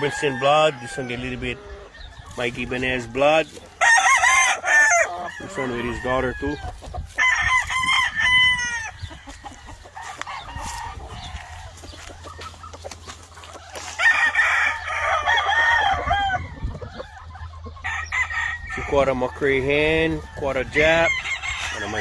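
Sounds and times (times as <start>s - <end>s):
rooster crowing: 0.0s - 1.5s, 3.8s - 6.6s, 7.2s - 11.8s, 13.8s - 16.7s, 19.6s - 22.0s.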